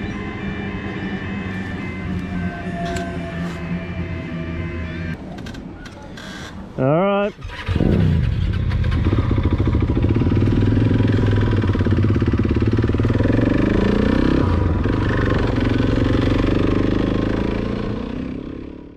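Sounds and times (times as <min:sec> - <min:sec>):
motorcycle engine revving: 0:07.4 - 0:18.9.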